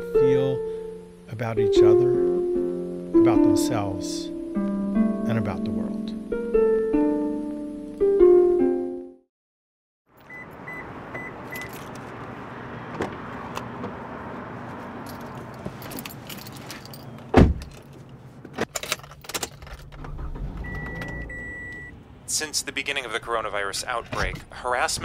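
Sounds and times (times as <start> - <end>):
keys jangling: 11.4 - 12.0, 15.0 - 18.1, 18.7 - 19.9
car door shutting: 12.9 - 14.0, 16.6 - 21.9
short electronic beeps: 20.6 - 21.9.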